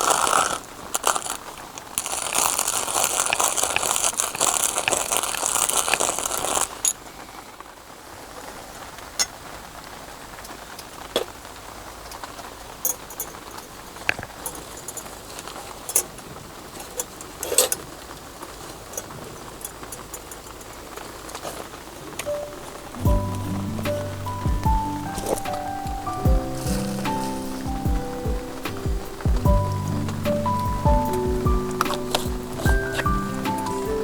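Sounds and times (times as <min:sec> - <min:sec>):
rain pattering and dripping: 0:00.0 - 0:34.0
dense hiss: 0:22.1 - 0:34.0.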